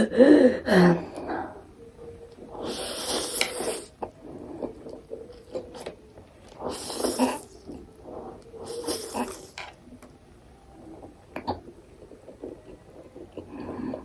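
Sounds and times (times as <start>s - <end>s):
person slurping noodles: 2.6s - 4.9s, 6.6s - 9.6s.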